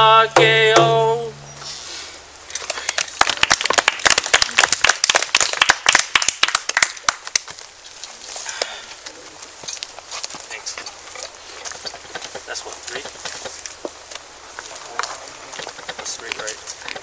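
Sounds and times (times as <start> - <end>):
audience applauding: 2.7 - 7.3.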